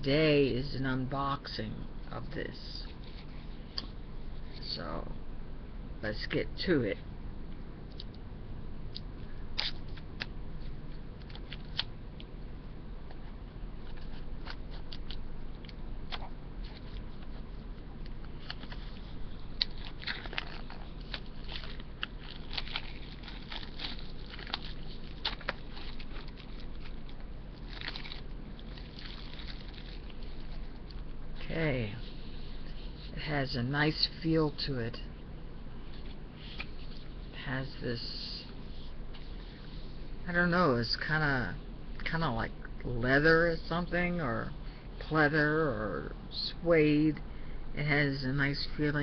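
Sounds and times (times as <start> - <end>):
plastic shrink-wrap crinkling and tearing: 18.3 - 31.5.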